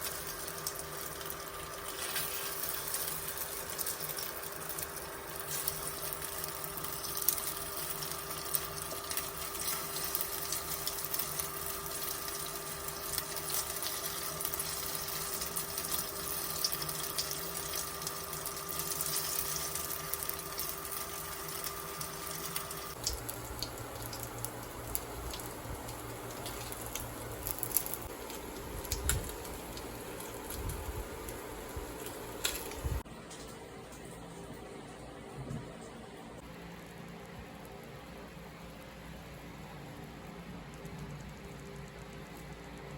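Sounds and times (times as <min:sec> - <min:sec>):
oil sizzling in a frying pan: 0:00.0 - 0:33.1
steady hum: 0:00.0 - 0:42.9.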